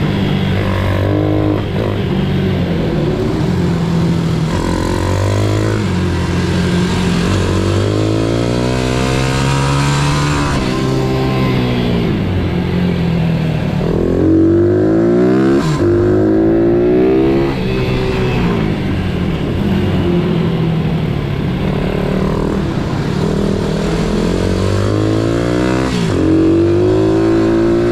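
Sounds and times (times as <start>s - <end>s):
pit bike engine revving: 0.0s - 13.0s, 21.1s - 27.9s.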